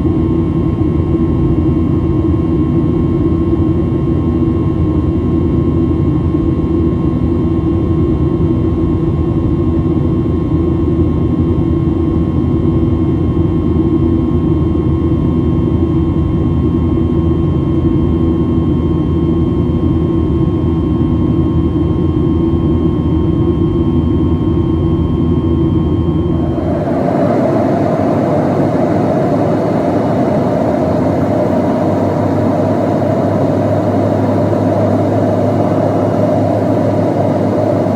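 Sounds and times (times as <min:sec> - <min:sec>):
jet engine drone: 0:13.3 - 0:37.9
faint whining tones: 0:24.5 - 0:37.9
rushing air: 0:26.2 - 0:37.9.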